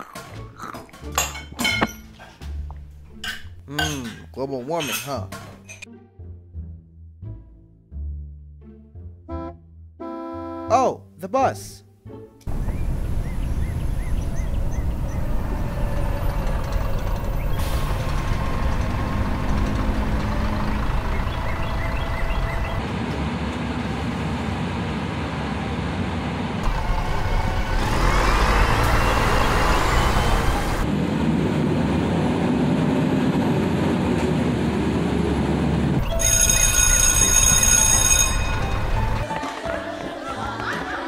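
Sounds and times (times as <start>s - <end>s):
music: 0.0s - 12.5s, 36.0s - 41.0s
bus engine running: 12.5s - 39.2s
rising engine whine: 12.5s - 39.2s.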